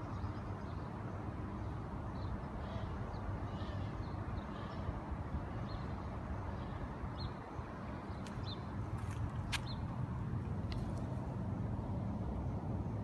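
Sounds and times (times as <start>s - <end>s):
small birds chirping: 1.6s - 10.0s
steady low rumble: 4.4s - 13.0s.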